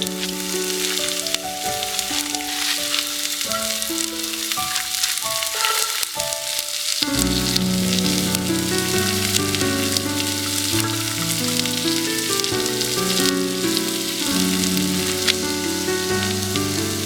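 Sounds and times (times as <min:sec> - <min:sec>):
food sizzling in a frying pan: 0:00.0 - 0:17.0
background music: 0:07.1 - 0:17.0.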